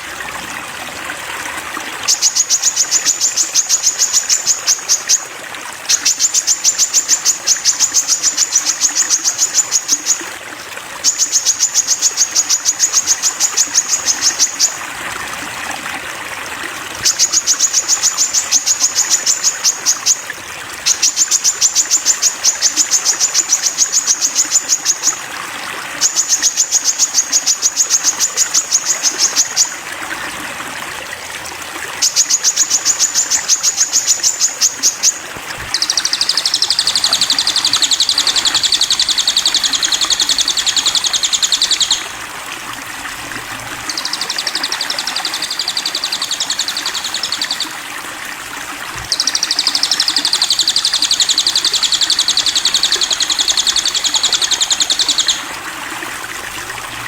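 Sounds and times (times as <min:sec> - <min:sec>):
trickle of running water: 0:00.0 - 0:57.0
bird singing rapid high notes: 0:32.0 - 0:42.2, 0:43.8 - 0:47.8, 0:49.0 - 0:55.5.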